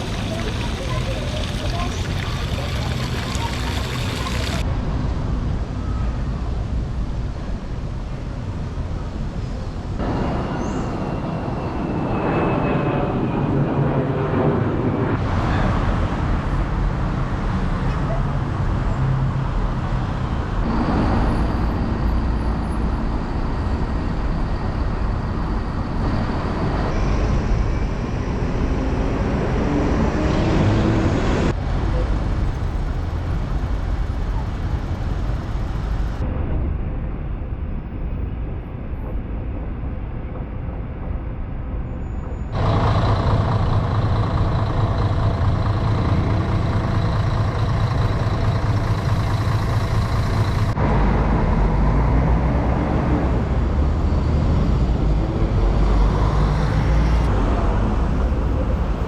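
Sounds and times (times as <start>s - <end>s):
indistinct voices: 0.0s - 4.6s
road traffic: 0.0s - 36.9s, 41.7s - 59.0s.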